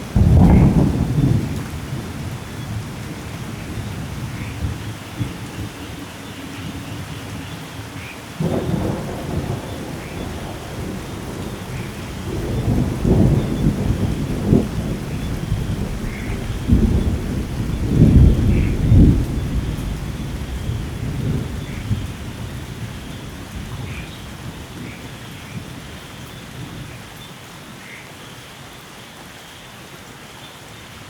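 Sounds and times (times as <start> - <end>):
thunder rumbling: 0.0 - 6.0, 8.4 - 27.0
rain hissing: 0.0 - 31.0.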